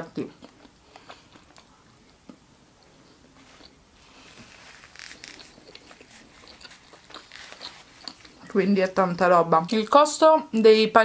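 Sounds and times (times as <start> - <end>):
person chewing crunchy food: 0.2 - 8.6.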